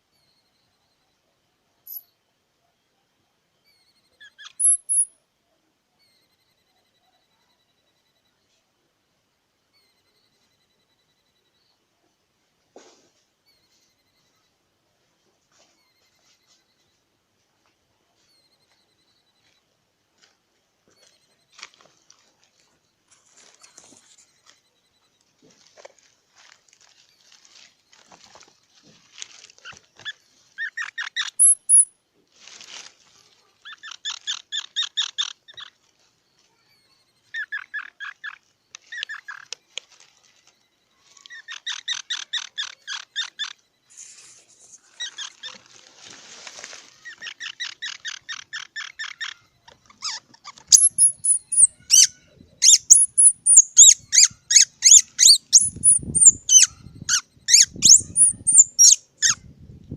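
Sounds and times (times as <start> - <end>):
high-pitched squeaky calls: 1.8 - 2.2, 3.6 - 5.2, 26.9 - 32.0, 33.2 - 59.5
squirrel chattering: 3.7 - 5.2, 30.6 - 31.9, 33.6 - 35.8, 36.7 - 39.6, 41.3 - 43.6, 44.9 - 45.6, 47.0 - 59.4.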